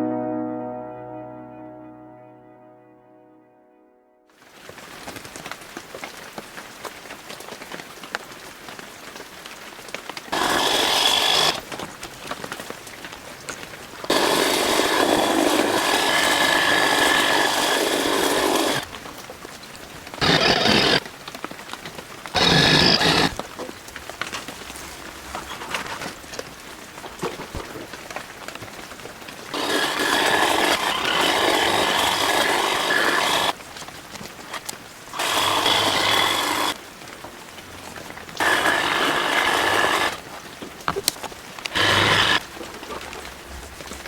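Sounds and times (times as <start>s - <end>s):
rain pattering: 4.4s - 10.4s, 21.0s - 22.4s, 23.4s - 29.6s, 33.5s - 35.2s, 36.8s - 38.4s
power hedge trimmer running: 10.3s - 11.6s, 14.1s - 18.9s, 20.2s - 21.0s, 22.4s - 23.4s, 29.5s - 33.6s, 35.2s - 36.8s, 38.4s - 40.2s, 41.7s - 42.4s.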